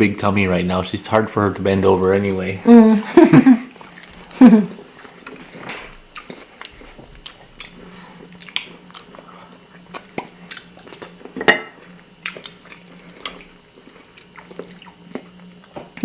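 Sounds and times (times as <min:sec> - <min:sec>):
faint steady hum: 0:00.0 - 0:16.0
people chewing: 0:03.0 - 0:16.0.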